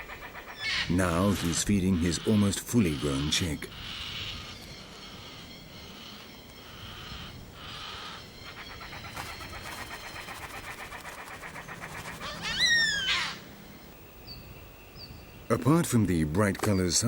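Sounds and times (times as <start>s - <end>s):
loud drawn-out bird call: 6.6s - 13.6s
cockatoo chick begging calls: 7.6s - 13.5s.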